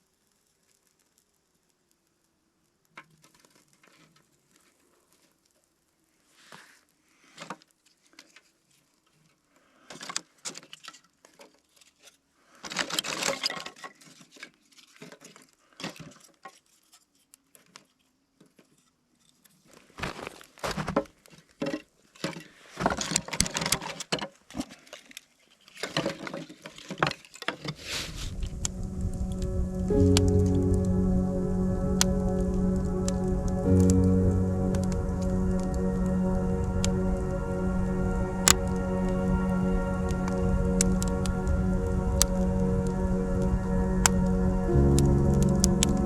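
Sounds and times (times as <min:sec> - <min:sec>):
background music: 0:28.4 - 0:46.0.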